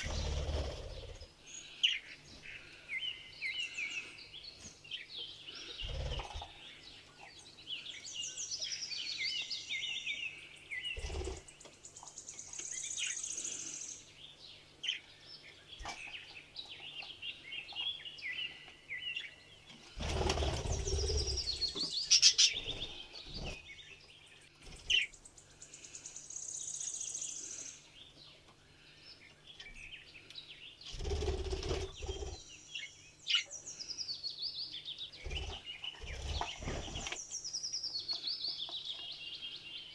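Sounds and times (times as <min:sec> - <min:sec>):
budgerigars chirping and warbling: 0:00.0 - 0:02.8, 0:05.0 - 0:07.4, 0:14.8 - 0:24.0, 0:34.9 - 0:37.2.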